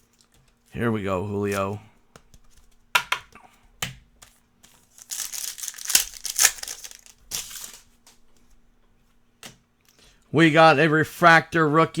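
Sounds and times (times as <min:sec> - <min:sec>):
wrapper crinkling and rustling: 0:04.7 - 0:08.2.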